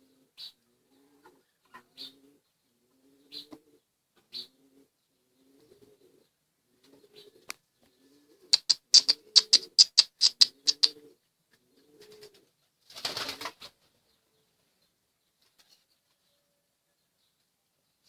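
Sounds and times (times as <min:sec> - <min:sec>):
pigeons cooing: 0:00.0 - 0:13.6
wing claps: 0:08.6 - 0:11.0
wings flapping: 0:12.0 - 0:13.8.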